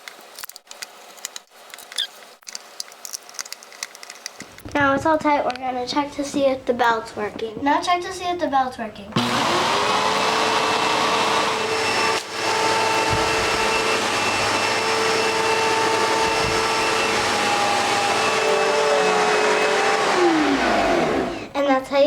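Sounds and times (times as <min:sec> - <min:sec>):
vacuum cleaner motor humming: 0:09.2 - 0:21.6.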